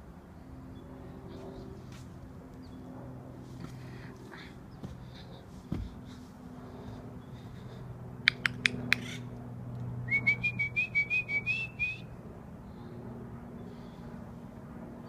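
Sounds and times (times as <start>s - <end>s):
bird clicky call notes: 8.3s - 9.2s.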